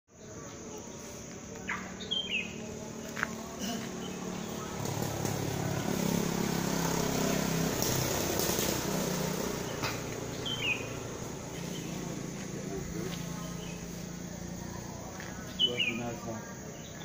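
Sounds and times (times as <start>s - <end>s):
birds calling: 0.1s - 17.0s
high insect drone: 0.1s - 17.0s
low engine hum: 0.2s - 17.0s.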